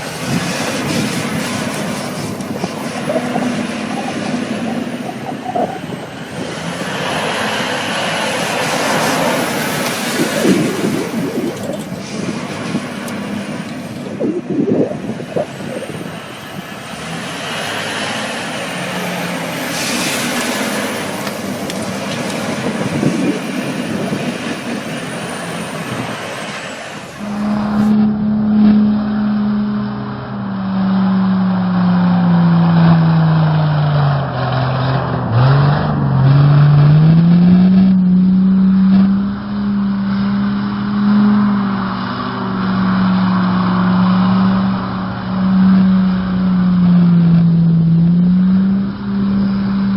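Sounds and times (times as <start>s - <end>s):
road noise: 0.0s - 49.9s
truck engine running: 0.0s - 49.9s.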